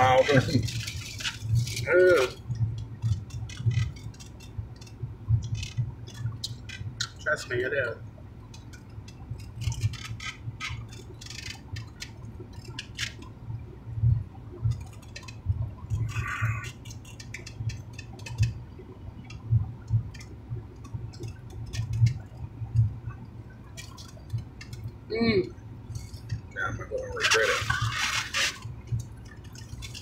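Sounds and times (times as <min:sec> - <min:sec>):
low steady hum: 0:00.0 - 0:30.0
wet chewing and lip smacking: 0:19.2 - 0:22.9.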